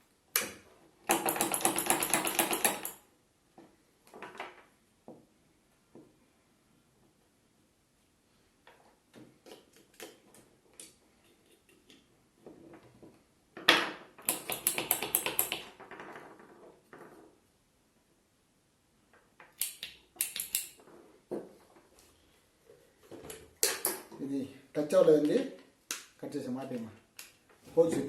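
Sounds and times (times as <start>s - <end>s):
switch parts clicking and rattling: 19.6s - 20.8s.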